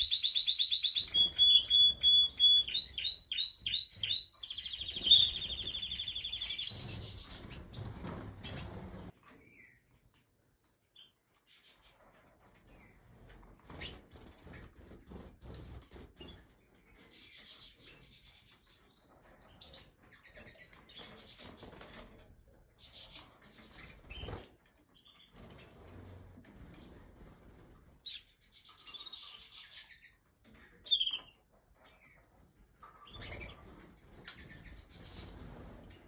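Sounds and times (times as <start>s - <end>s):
birds chirping: 0.0s - 9.9s
wings flapping: 4.7s - 9.1s.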